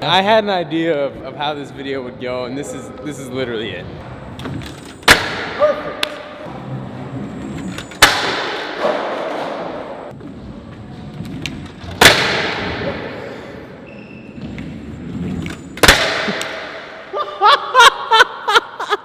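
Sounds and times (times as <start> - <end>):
scooter slamming on concrete: 15.8 - 16.8.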